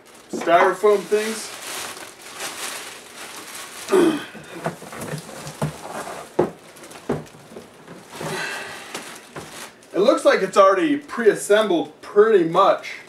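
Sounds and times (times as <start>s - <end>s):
styrofoam pieces being handled: 0.0s - 10.6s
cardboard box knocks and scrapes: 4.5s - 8.4s.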